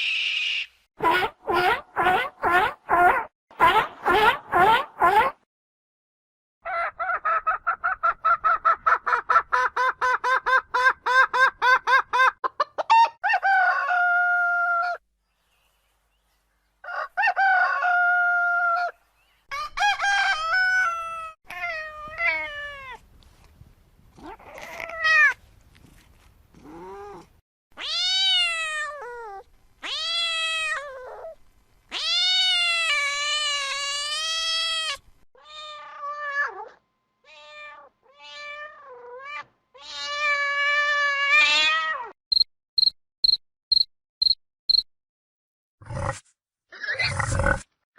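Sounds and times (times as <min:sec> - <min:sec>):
chickens clucking and cackling: 0:06.7 - 0:14.2, 0:16.8 - 0:18.7
rooster crowing: 0:13.2 - 0:15.0, 0:16.8 - 0:21.3.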